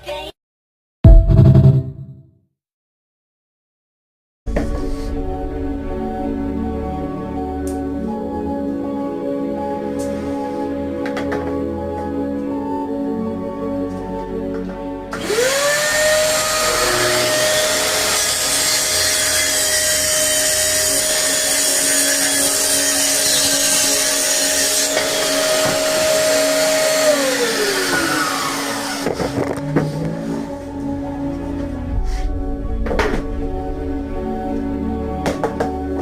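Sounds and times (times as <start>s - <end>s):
power tool motor whining: 15.1s - 30.2s
tool cutting through wood: 15.1s - 30.5s.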